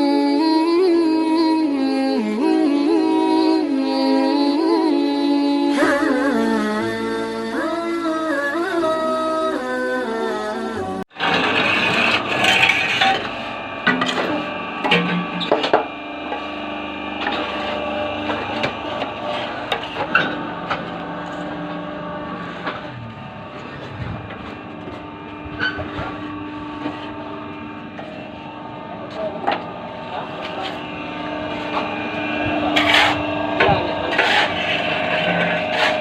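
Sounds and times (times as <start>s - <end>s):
music: 4.2s - 11.0s
press machine humming: 11.1s - 36.0s.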